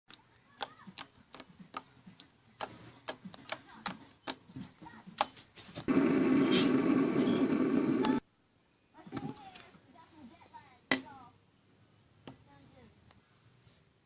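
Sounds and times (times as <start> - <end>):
loud steady sound: 5.9 - 8.2.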